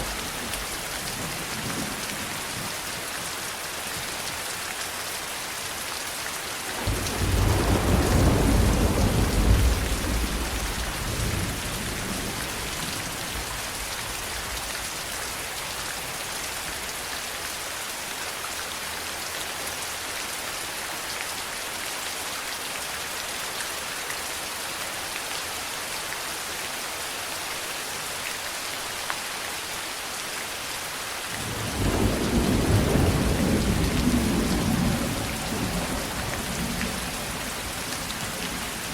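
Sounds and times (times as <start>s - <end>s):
rain falling: 0.0s - 38.9s
thunder rumbling: 6.7s - 14.6s, 31.4s - 38.9s.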